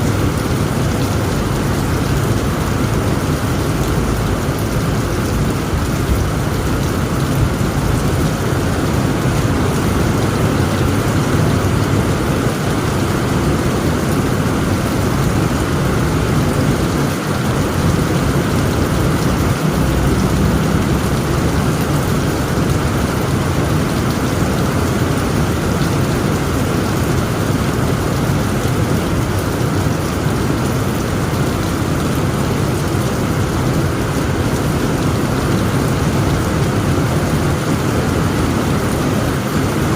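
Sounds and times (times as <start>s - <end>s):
heavy rain on a tent roof: 0.0s - 39.9s.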